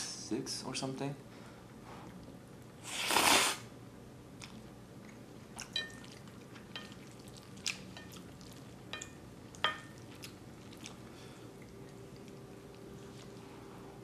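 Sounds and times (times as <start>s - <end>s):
slurp: 2.9s - 3.6s
person chewing noodles: 4.4s - 13.4s.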